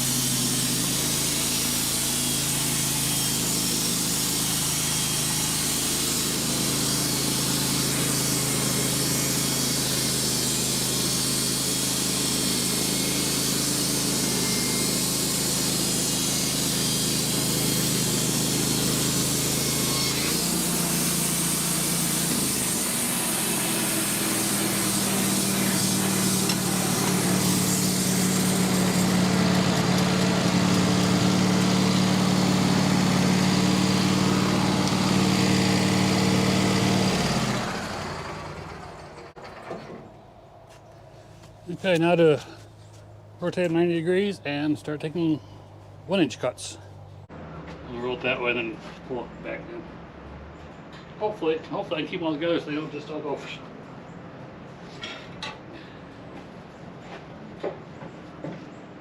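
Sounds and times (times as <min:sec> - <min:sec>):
saw blade cutting hiss: 0:00.0 - 0:37.8
sawmill engine running: 0:00.0 - 0:40.8.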